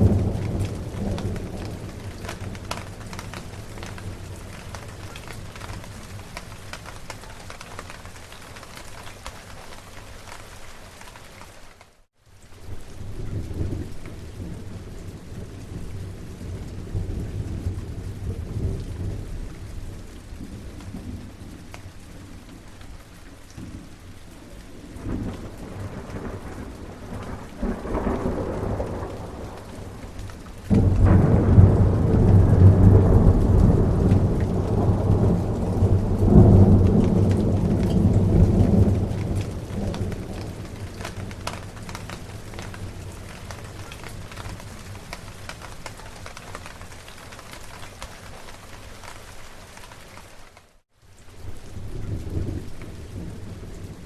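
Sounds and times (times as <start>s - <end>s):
rolling thunder: 0.0s - 7.4s, 23.6s - 45.7s
steady rain: 0.0s - 54.0s.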